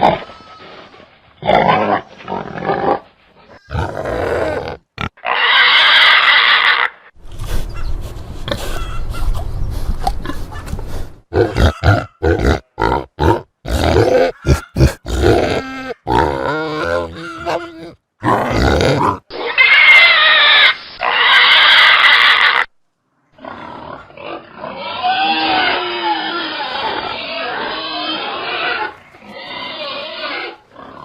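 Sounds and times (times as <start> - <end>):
pigs grunting: 1.4 - 7.9, 8.5 - 9.4, 10.1 - 19.3
pigs squealing: 1.5 - 7.1, 8.5 - 9.4, 11.4 - 22.7, 23.4 - 31.0.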